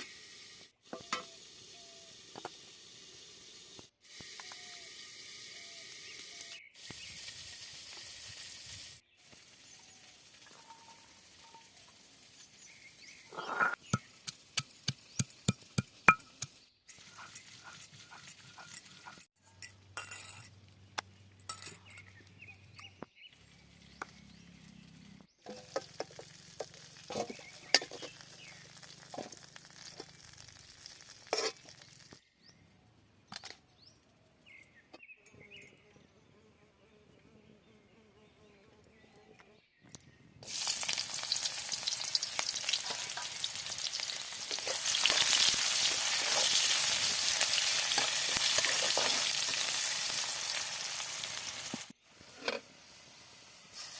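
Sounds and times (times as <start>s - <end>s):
food sizzling in hot oil: 0.0s - 17.7s, 25.5s - 32.2s, 40.4s - 53.9s.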